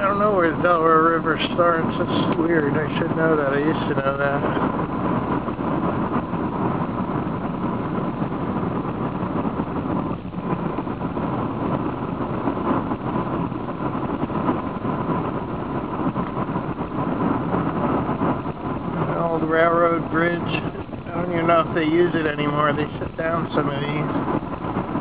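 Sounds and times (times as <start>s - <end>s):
car road and engine rumble: 0.0s - 25.0s
faint steady whine: 0.0s - 25.0s.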